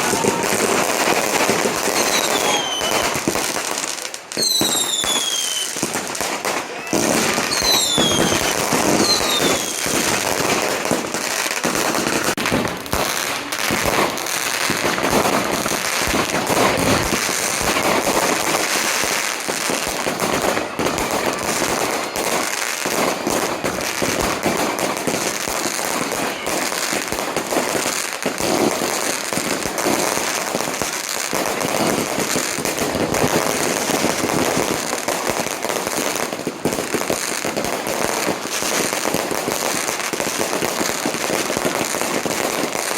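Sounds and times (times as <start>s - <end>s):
firecrackers crackling and popping: 0.0s - 42.9s
falling whistle: 2.0s - 3.2s, 4.4s - 5.8s, 6.8s - 9.8s.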